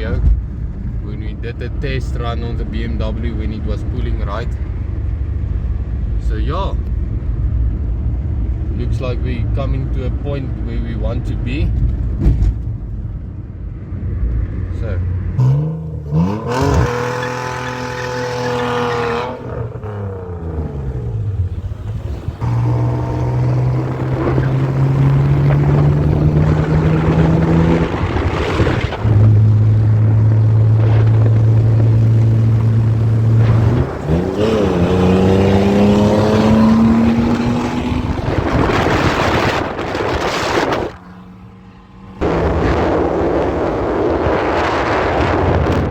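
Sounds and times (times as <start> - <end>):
car engine revving: 15.2 - 45.8.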